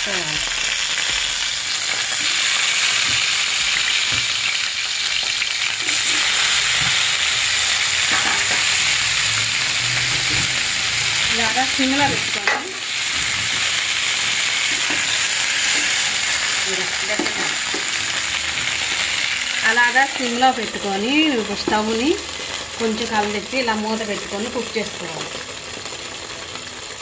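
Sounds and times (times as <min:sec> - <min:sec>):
vegetables sizzling in hot oil: 0:00.0 - 0:27.0.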